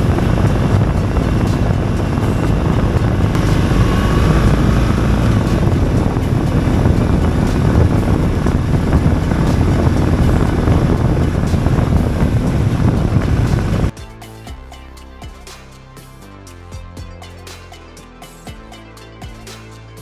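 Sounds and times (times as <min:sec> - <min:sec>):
motorcycle engine and wind rush: 0:00.0 - 0:14.0
music: 0:00.0 - 0:20.0.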